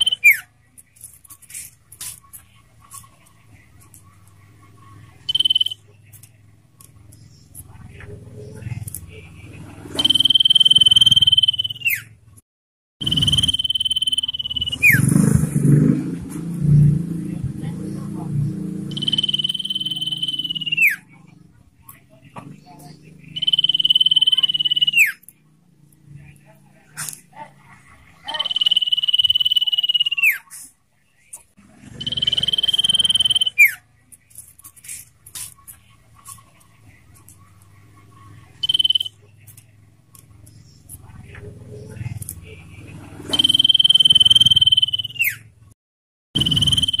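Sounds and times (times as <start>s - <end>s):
bird trilled whistle: 0.0s - 0.4s, 5.3s - 5.8s, 10.0s - 12.1s, 13.0s - 15.1s, 18.9s - 21.0s, 23.4s - 25.2s, 28.3s - 30.4s, 32.0s - 33.8s, 38.6s - 39.2s, 43.3s - 45.5s, 46.4s - 47.0s.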